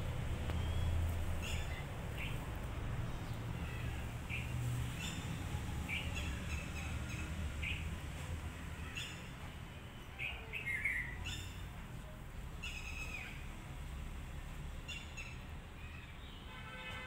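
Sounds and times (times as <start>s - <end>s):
birds chirping: 0.0s - 8.0s, 8.7s - 11.8s.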